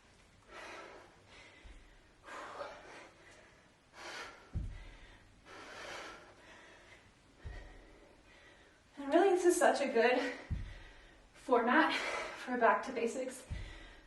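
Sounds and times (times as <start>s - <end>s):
woman breathing hard: 0.4s - 9.0s, 10.2s - 12.5s, 13.4s - 14.0s
dull low thuds: 4.4s - 5.2s, 7.3s - 8.1s, 10.3s - 11.4s, 13.4s - 14.0s.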